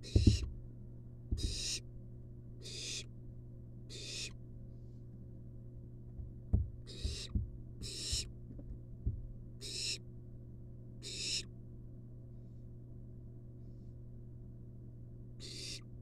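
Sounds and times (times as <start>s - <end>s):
knocks and scrapes in nest box: 0.0s - 0.5s, 1.4s - 1.8s, 6.9s - 8.3s
owl chick hissing call: 1.4s - 1.8s, 2.6s - 3.1s, 3.9s - 4.4s, 6.9s - 8.2s, 9.6s - 10.0s, 11.0s - 11.5s, 15.4s - 15.8s.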